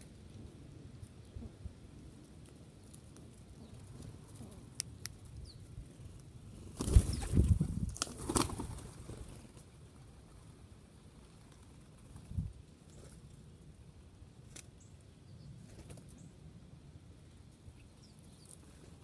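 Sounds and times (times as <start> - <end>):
bird wings flapping: 6.7 - 9.7.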